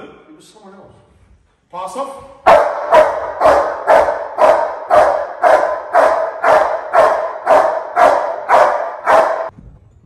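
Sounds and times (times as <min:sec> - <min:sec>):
dog barking: 0:02.4 - 0:09.5.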